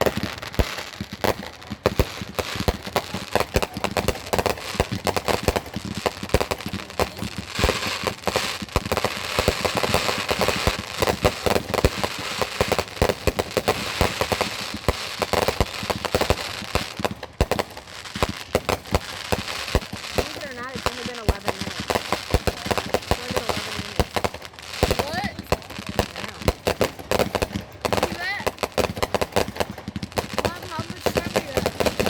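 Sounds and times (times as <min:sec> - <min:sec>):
fireworks bangs: 0:00.0 - 0:32.0
fireworks crackling: 0:00.0 - 0:32.0.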